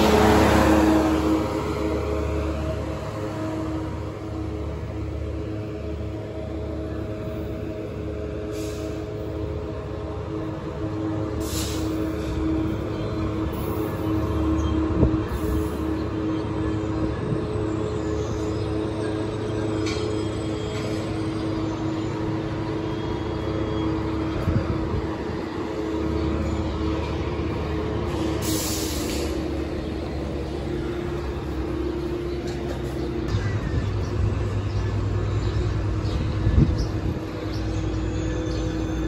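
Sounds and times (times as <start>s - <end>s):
locomotive engine hum: 0.0s - 39.0s
air hissing: 11.4s - 12.0s, 28.1s - 29.4s.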